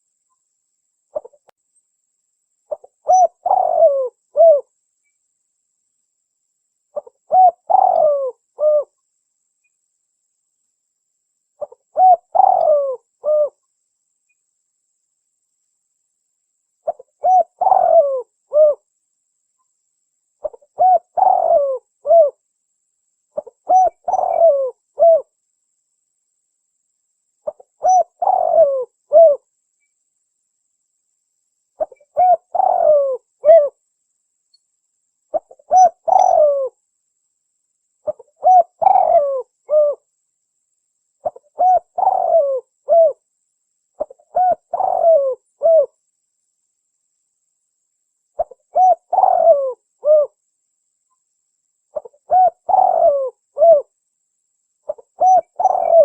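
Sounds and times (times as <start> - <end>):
dove cooing: 1.1 - 1.4, 2.7 - 4.7, 7.0 - 9.0, 11.6 - 13.6, 16.8 - 18.8, 20.4 - 22.4, 23.4 - 25.3, 27.4 - 29.5, 31.8 - 33.8, 35.3 - 36.8, 38.0 - 40.0, 41.2 - 43.2, 44.0 - 46.0, 48.4 - 50.4, 51.9 - 53.9, 54.9 - 56.0.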